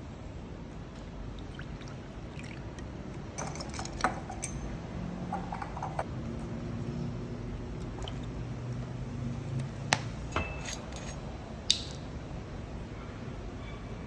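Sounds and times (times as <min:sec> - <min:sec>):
glass and dishes clinking: 0:03.3 - 0:04.7, 0:10.3 - 0:11.8
light ringing clinks: 0:03.4 - 0:04.8, 0:10.3 - 0:12.0.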